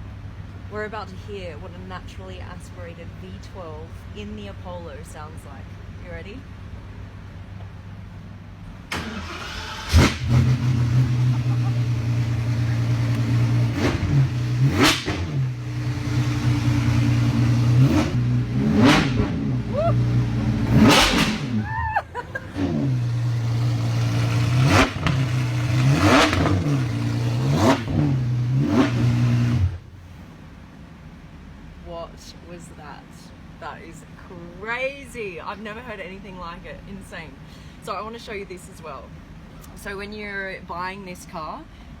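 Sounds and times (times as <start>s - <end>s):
car engine starting: 8.6s - 30.7s
engine revving hard: 9.0s - 21.7s, 22.4s - 29.8s.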